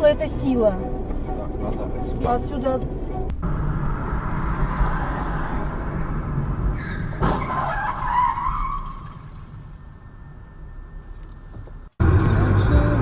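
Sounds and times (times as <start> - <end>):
car road noise: 0.0 - 13.0
screech: 3.4 - 11.5
sudden bang: 5.6 - 7.7.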